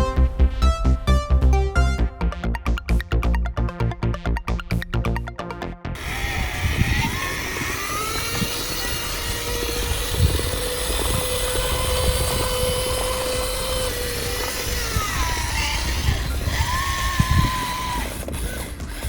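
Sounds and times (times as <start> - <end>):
low rumbling noise: 0.0 - 5.2
electronic background music: 0.0 - 9.0
small electric motor whining: 6.0 - 19.0.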